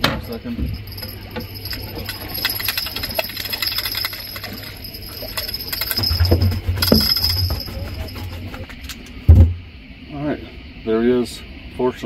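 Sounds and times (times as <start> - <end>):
fishing reel clicking: 0.9 - 8.5.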